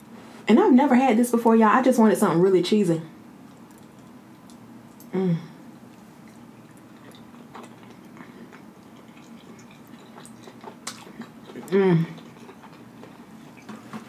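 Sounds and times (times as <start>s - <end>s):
person chewing: 3.4s - 5.2s, 5.9s - 14.0s.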